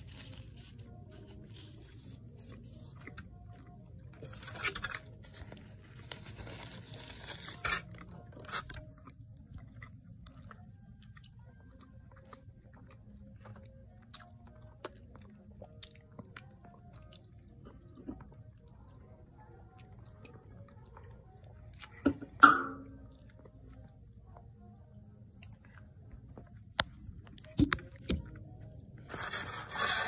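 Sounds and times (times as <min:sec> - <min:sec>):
crunchy chewing noise: 0:00.0 - 0:22.0
wet chewing with clicks: 0:08.0 - 0:22.0.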